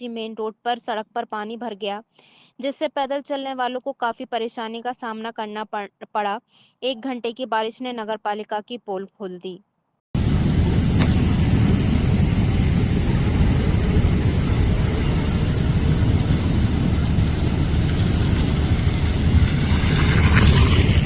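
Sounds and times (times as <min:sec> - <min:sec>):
road traffic rumble: 0:10.2 - 0:21.0
tyre hiss on wet road: 0:10.2 - 0:21.0.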